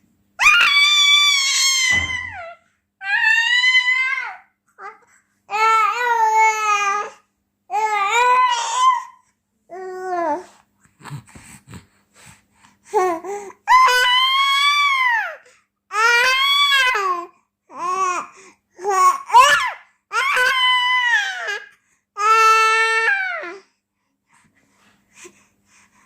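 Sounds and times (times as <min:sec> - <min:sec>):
baby girl wailing: 0:00.4 - 0:07.1, 0:07.7 - 0:10.4, 0:13.7 - 0:18.2, 0:18.9 - 0:23.6
baby soft little sounds: 0:00.4 - 0:26.0.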